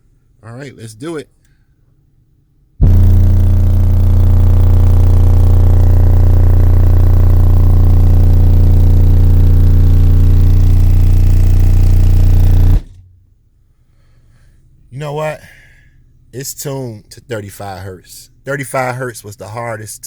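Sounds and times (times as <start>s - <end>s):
loud bass test tone drone: 2.8s - 13.1s.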